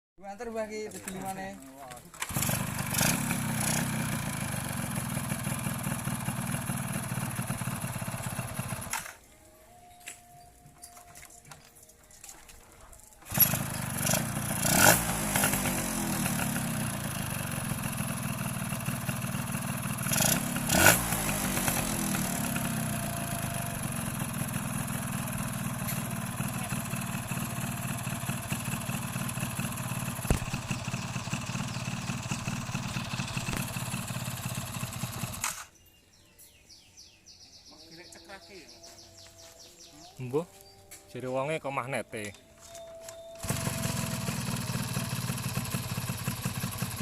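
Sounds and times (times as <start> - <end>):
two-stroke motorcycle engine: 1.0 - 9.2, 13.2 - 35.7, 43.4 - 47.0.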